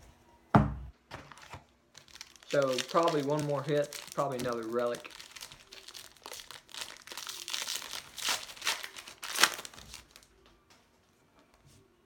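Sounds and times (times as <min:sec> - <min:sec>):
foil wrapper crinkling: 0:01.3 - 0:10.3.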